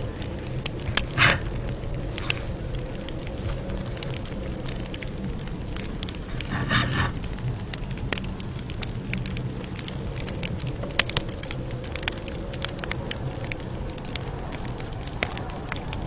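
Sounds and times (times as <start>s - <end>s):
fire hissing: 0.0s - 7.5s
campfire crackling: 0.0s - 16.0s.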